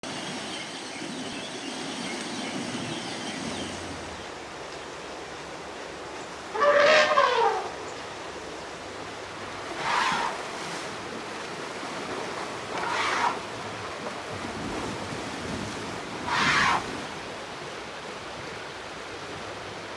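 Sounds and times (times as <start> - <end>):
elephant trumpeting: 6.5 - 7.8, 12.7 - 13.5.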